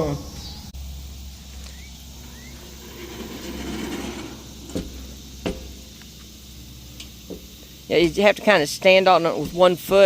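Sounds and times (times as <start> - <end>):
door scraping rumble: 1.6 - 7.6
sharp knocks: 2.9 - 6.0.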